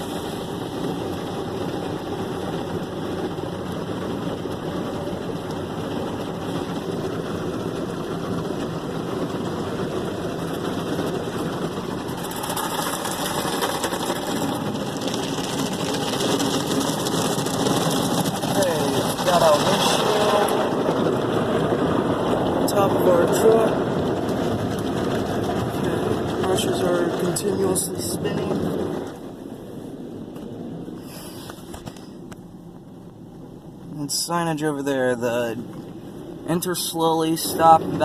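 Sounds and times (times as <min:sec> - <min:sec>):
car wash brushes scrubbing: 0:09.2 - 0:29.1.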